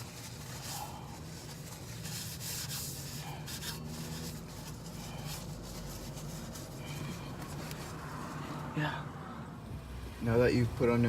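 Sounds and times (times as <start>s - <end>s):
rubbing and scraping handling noise: 0.0s - 8.7s.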